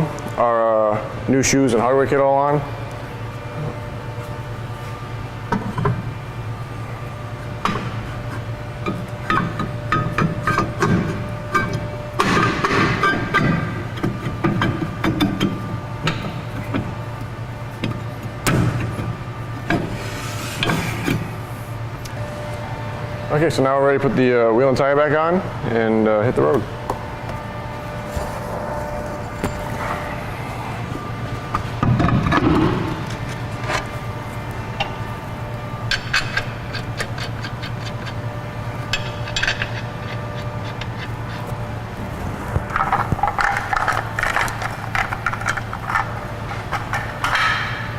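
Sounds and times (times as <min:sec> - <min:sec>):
steady low hum: 0:00.0 - 0:47.9
metal knocks and clanks: 0:42.7 - 0:47.9.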